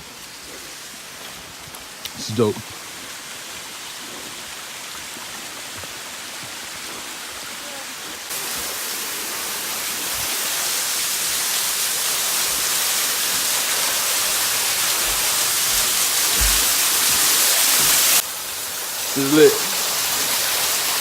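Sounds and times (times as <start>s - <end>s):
waterfall rushing: 0.0s - 21.0s
low bumps on microphone: 15.7s - 16.7s.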